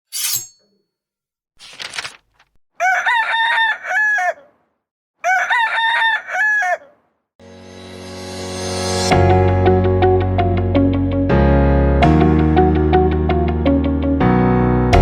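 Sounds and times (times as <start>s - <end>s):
rooster crowing: 2.8s - 4.6s, 5.2s - 7.0s.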